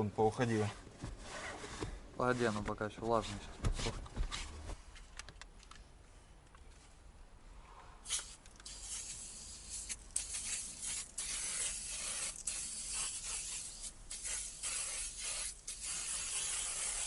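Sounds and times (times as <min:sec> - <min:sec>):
aerosol can spraying: 0:08.0 - 0:17.0.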